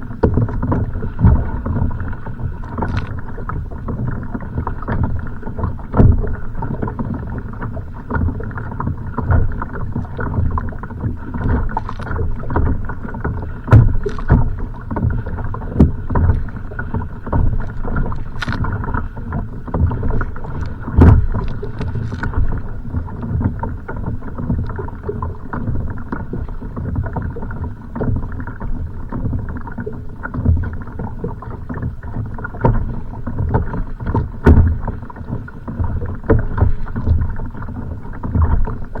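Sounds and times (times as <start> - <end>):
wind on microphone: 0.0 - 29.4
water knocking against kayak hull: 0.0 - 39.0.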